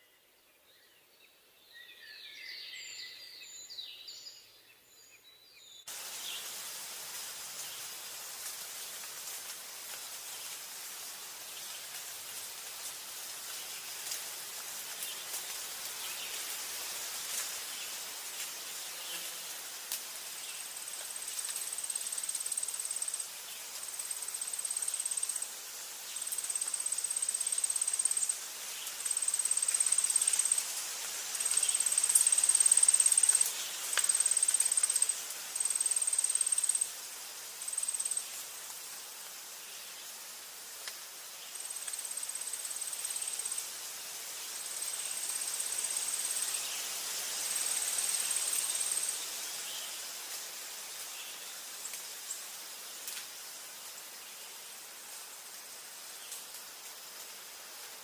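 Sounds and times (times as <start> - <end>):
forest background hiss: 0.0 - 58.0
insect trilling: 21.3 - 25.5, 26.2 - 30.7, 31.3 - 37.0, 37.6 - 38.4, 41.6 - 43.6, 47.5 - 49.2.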